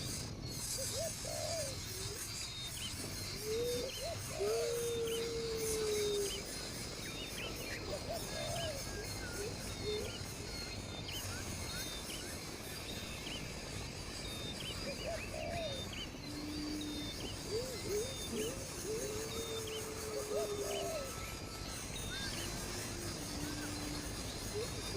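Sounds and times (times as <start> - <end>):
lower bird calls: 0.0 - 24.9.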